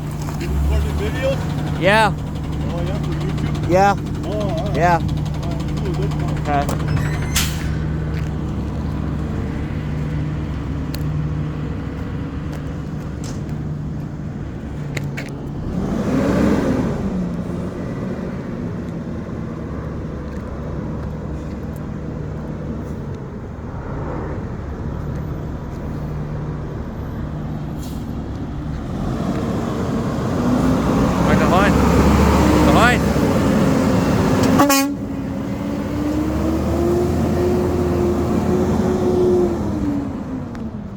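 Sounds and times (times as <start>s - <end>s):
vehicle passing by: 0.0s - 12.6s, 19.7s - 40.9s
garbage truck diesel engine running: 0.0s - 14.7s, 25.9s - 40.9s.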